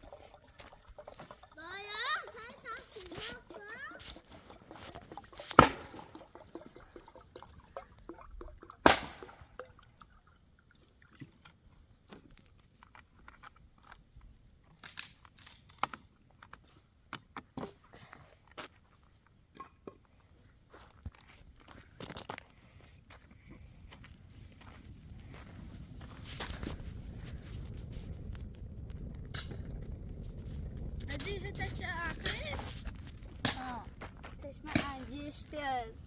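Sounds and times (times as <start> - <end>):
crunches and sharp cracks: 12.1 - 17.4.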